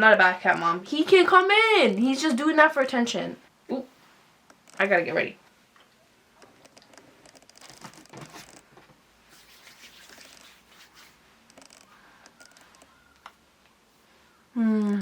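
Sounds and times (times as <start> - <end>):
small clicks: 5.8 - 8.7, 11.4 - 13.8
rustling and scratching: 6.4 - 14.3.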